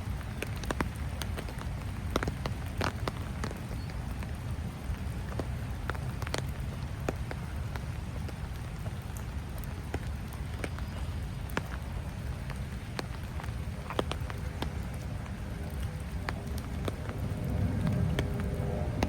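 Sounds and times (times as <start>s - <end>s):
light rain: 0.0s - 19.0s
steady low rumble: 13.2s - 19.0s.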